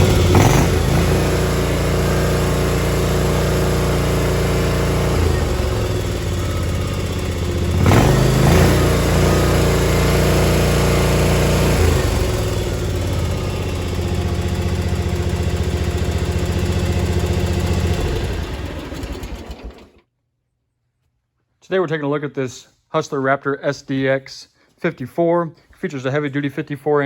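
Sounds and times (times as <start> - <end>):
mower clunk: 0.0 - 20.0
mower engine running: 0.0 - 20.0.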